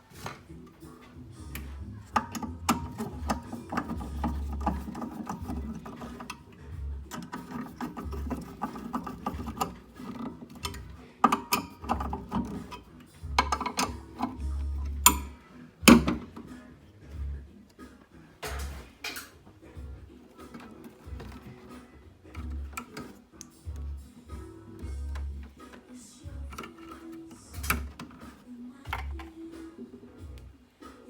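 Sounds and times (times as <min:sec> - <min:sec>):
metal parts and tools rattling: 0:00.1 - 0:16.5, 0:18.4 - 0:19.4, 0:20.4 - 0:21.8, 0:26.5 - 0:29.3.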